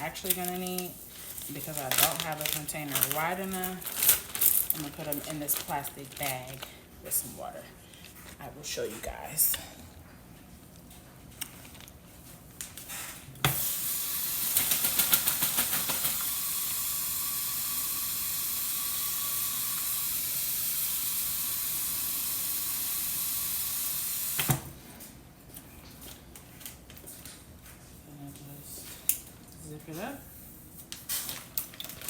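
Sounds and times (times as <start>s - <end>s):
tap water running into plastic bag: 0.0s - 6.7s, 13.5s - 24.8s, 31.2s - 32.0s.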